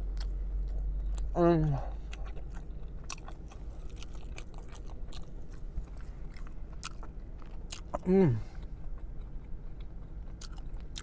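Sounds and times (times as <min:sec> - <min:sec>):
man chewing: 0:00.0 - 0:11.0.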